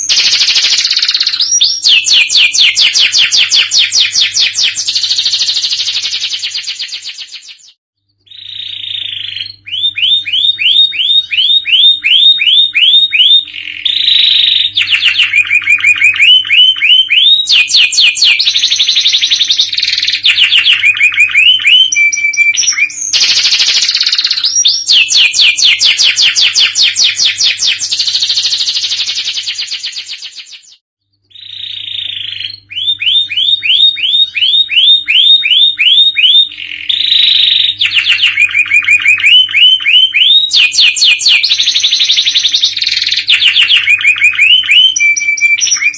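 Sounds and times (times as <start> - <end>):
canary singing: 0.0 - 45.9.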